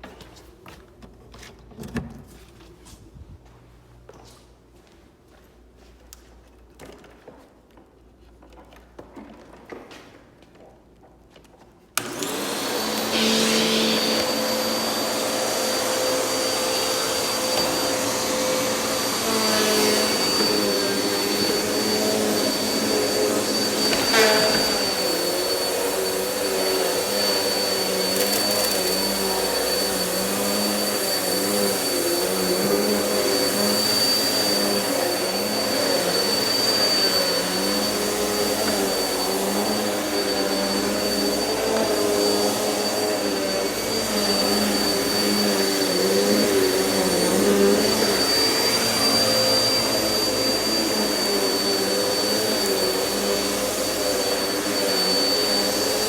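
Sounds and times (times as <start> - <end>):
vacuum cleaner running: 12.0 - 56.0.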